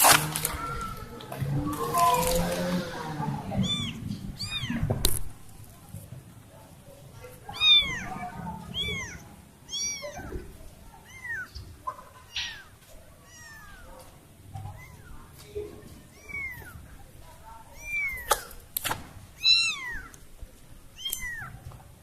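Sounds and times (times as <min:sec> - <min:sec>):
kitten meowing: 0:03.5 - 0:05.1, 0:07.5 - 0:11.6, 0:12.3 - 0:13.9, 0:14.7 - 0:15.2, 0:16.0 - 0:16.8, 0:17.8 - 0:18.5, 0:19.4 - 0:20.2, 0:21.0 - 0:21.6.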